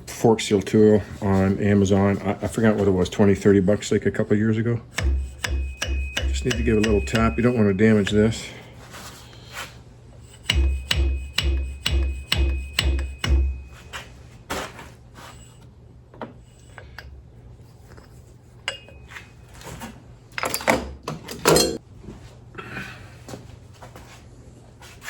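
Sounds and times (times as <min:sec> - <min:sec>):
metal knocks: 0:04.9 - 0:08.4, 0:10.4 - 0:13.8.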